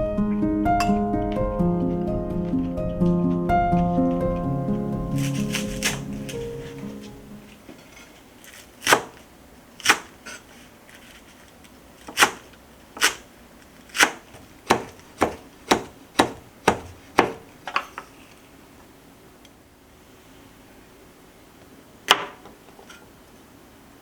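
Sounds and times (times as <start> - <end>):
knife chopping on cutting board: 0.8 - 7.2, 8.8 - 9.2, 14.0 - 17.5.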